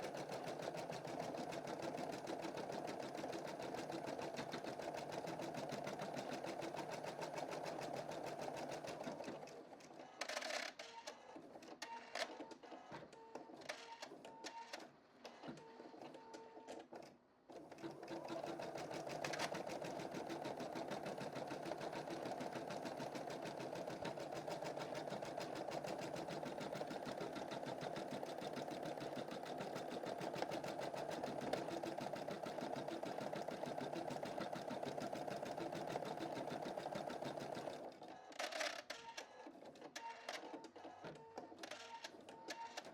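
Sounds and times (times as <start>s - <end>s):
embroidery machine stitching: 0.0s - 9.6s, 17.6s - 38.0s.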